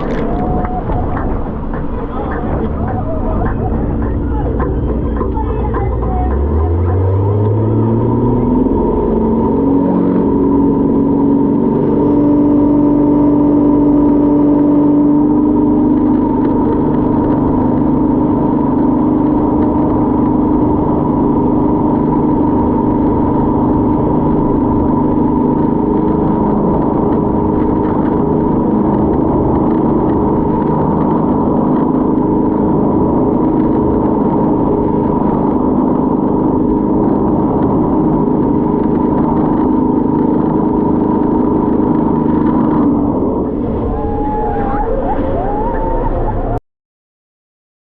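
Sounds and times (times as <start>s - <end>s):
motorboat engine droning: 0.0s - 46.6s.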